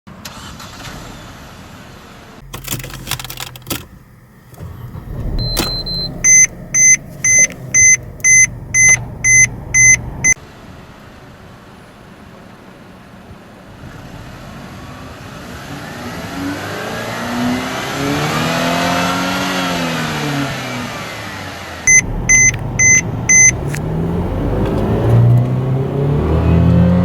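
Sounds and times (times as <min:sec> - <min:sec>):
car engine starting and idling: 0:00.2 - 0:10.4, 0:21.9 - 0:27.0
keys rattling: 0:02.4 - 0:04.2
loud beeps: 0:05.3 - 0:10.4, 0:21.9 - 0:23.6.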